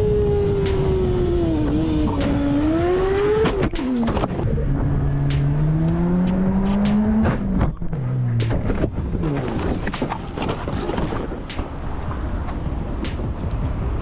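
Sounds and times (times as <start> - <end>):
motorcycle engine revving: 0.0 - 9.9
wind and road rumble: 0.0 - 14.0.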